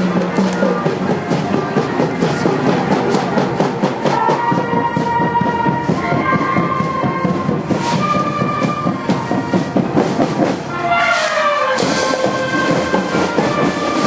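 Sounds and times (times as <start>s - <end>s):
band playing music: 0.0s - 14.0s
drums and percussion beat: 0.0s - 14.0s.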